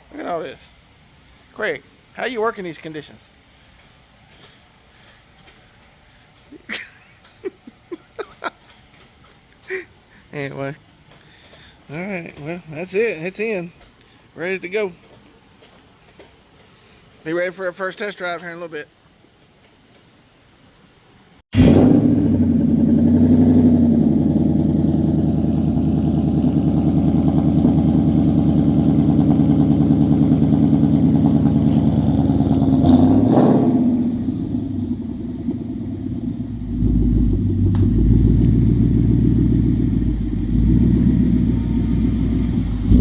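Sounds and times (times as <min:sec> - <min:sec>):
car engine running: 0:21.6 - 0:43.0.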